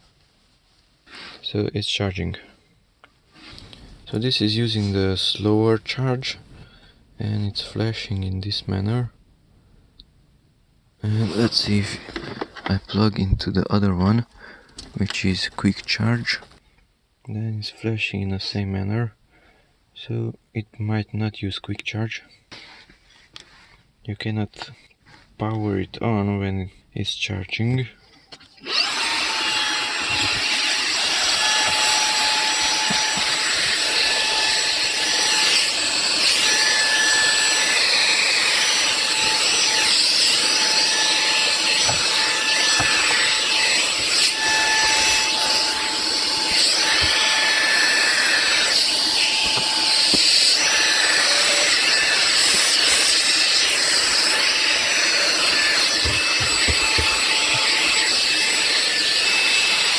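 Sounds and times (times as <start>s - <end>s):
vacuum cleaner motor running: 11.1s - 12.4s, 28.6s - 59.9s.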